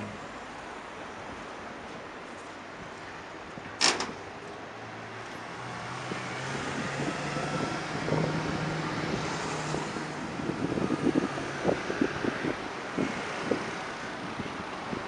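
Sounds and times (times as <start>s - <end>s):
car engine passing slowly: 4.8s - 12.6s.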